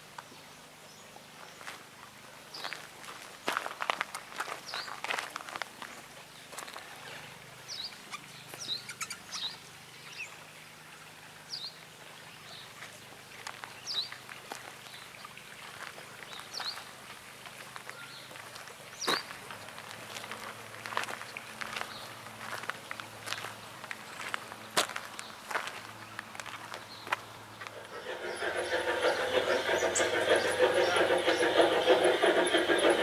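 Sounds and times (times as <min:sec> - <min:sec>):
bird chirping: 0:07.7 - 0:10.3.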